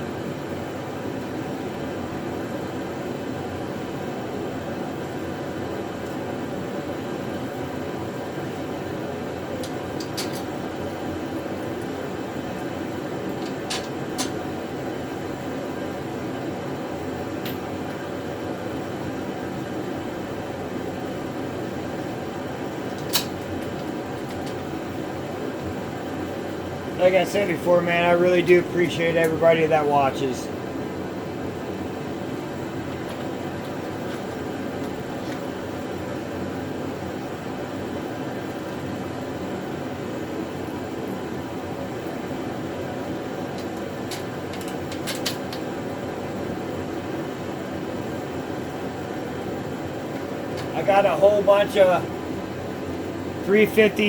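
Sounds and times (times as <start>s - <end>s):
fan humming: 0.0s - 54.0s
sharp click: 23.1s - 23.4s.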